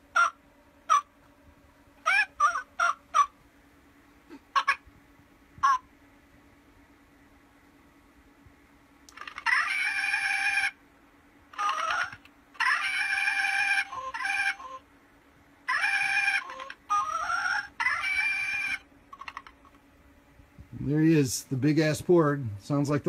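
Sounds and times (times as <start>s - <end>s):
toy bird-like squawks and chirps: 0.1s - 1.1s, 2.0s - 3.4s, 4.5s - 4.8s, 5.6s - 5.8s, 9.1s - 10.8s, 11.5s - 14.8s, 15.6s - 19.8s.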